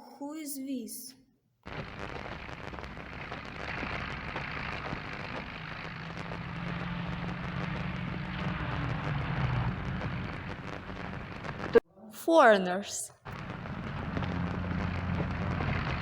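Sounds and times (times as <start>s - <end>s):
vehicle engine running: 1.7s - 11.7s, 13.4s - 16.0s
low drone: 2.6s - 11.8s.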